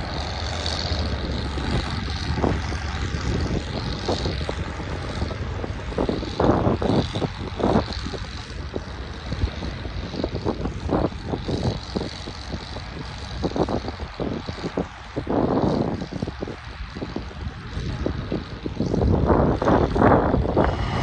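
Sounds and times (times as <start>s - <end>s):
tractor engine running: 20.6s - 21.0s.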